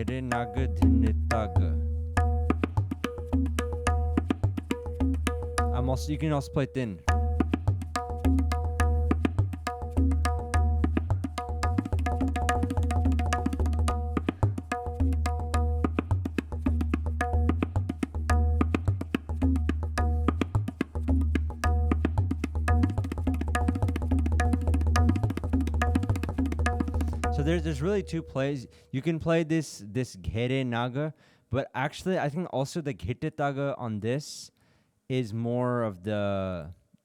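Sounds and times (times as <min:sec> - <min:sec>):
tabla playing fast rhythm: 0:00.0 - 0:28.5.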